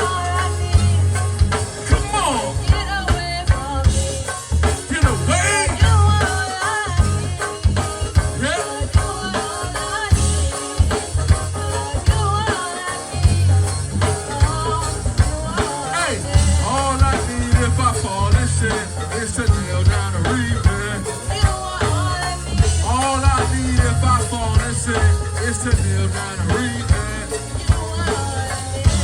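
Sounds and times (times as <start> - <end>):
drum hits: 0.0 - 29.0
live band playing upbeat groove: 0.0 - 29.0.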